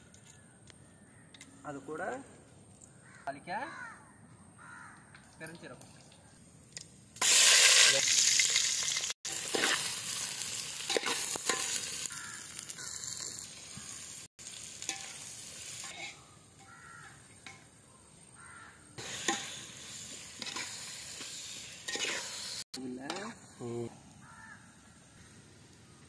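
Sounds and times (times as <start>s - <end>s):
vegetables sizzling in hot oil: 7.2s - 17.6s, 19.0s - 26.0s
metal spoon scraping a pot: 15.8s - 16.2s, 21.9s - 22.4s.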